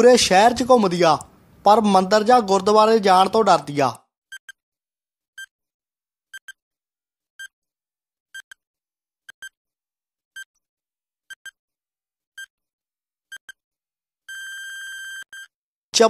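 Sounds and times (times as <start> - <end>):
electronic timer ticks: 4.3 - 4.6, 6.3 - 6.6, 8.4 - 8.6, 9.3 - 9.6, 11.3 - 11.6.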